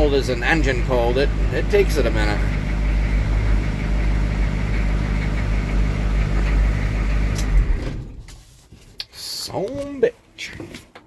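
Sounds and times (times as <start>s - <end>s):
diesel truck engine idling: 0.0s - 8.2s.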